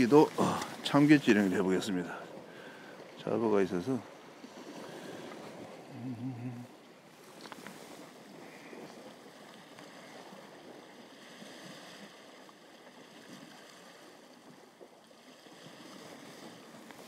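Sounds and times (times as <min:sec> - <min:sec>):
sea water lapping against rocks: 0:00.0 - 0:17.0.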